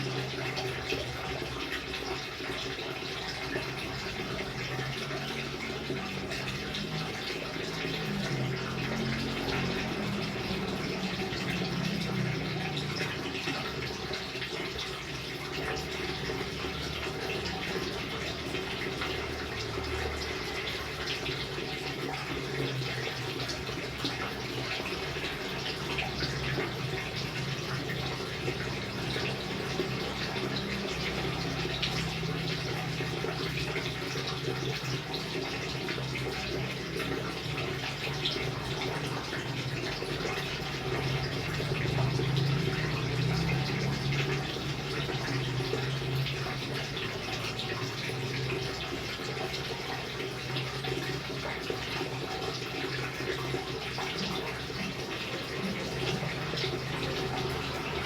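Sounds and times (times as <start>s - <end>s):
steady rain: 7.8s - 13.3s, 38.2s - 47.0s.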